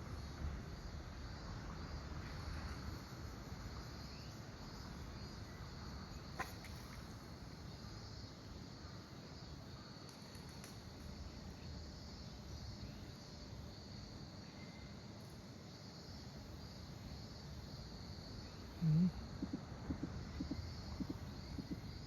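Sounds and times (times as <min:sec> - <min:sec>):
insects chirring: 0:00.0 - 0:22.0
low background rumble: 0:17.7 - 0:22.0.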